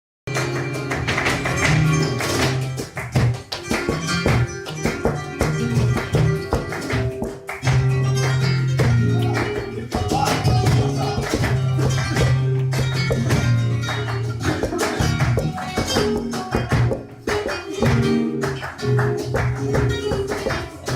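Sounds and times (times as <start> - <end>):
flamenco guitar playing: 0.3 - 20.9
sharp percussive hits: 0.3 - 20.9.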